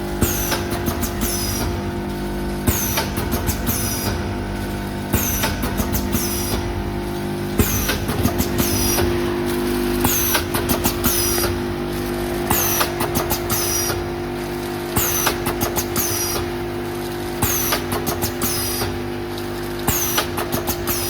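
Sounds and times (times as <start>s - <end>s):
packaging machine humming: 0.0s - 21.0s
machine clicks: 5.1s - 6.7s, 7.5s - 11.7s, 12.4s - 14.1s, 14.9s - 16.6s, 17.4s - 21.0s.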